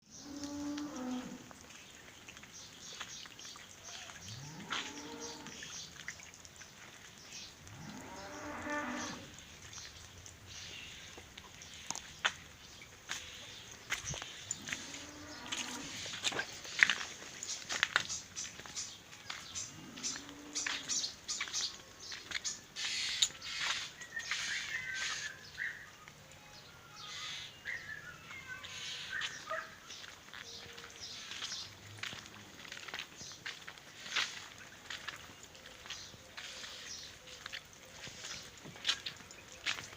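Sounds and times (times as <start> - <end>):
birds chirping: 0.0 - 39.9
cow mooing: 4.4 - 5.6, 7.8 - 9.3, 14.6 - 16.0.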